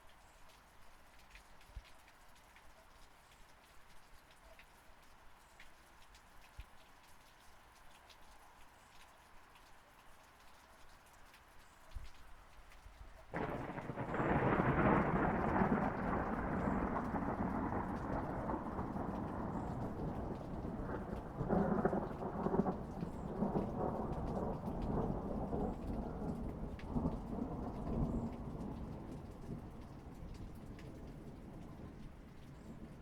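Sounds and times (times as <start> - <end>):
falling rain: 0.0 - 33.0
thunder rumbling: 13.3 - 33.0.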